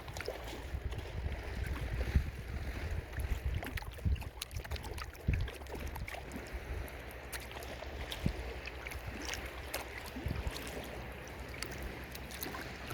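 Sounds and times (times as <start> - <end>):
water splashing around kayak: 0.0 - 12.9.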